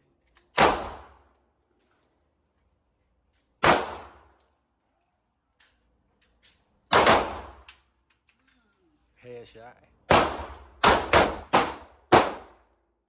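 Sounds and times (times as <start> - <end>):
gunshots: 0.6 - 1.2, 3.6 - 4.2, 6.9 - 7.6, 10.1 - 12.6.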